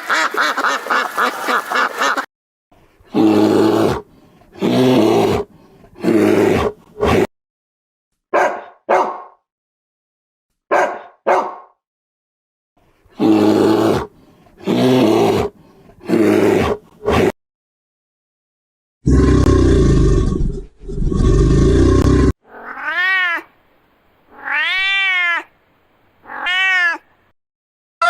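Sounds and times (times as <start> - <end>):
animal giving harsh calls: 21.9 - 23.5, 24.3 - 25.5, 26.2 - 27.1.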